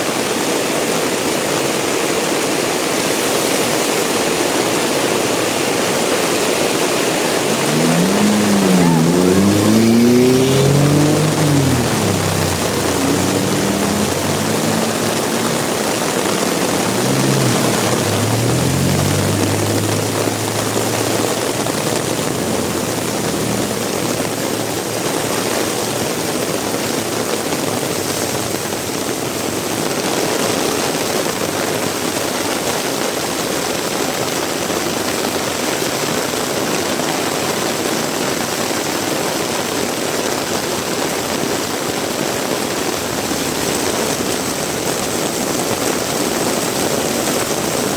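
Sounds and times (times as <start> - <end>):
heavy rain hissing: 6.1 - 29.0, 41.0 - 47.9
vehicle engine passing: 6.2 - 28.9, 42.4 - 47.9.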